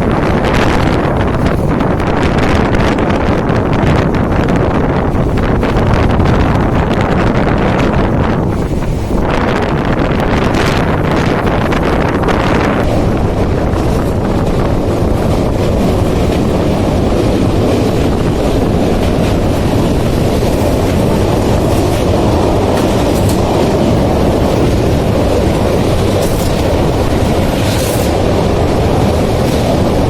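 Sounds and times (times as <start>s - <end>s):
train rumbling: 0.0s - 30.0s
wind on microphone: 0.0s - 30.0s.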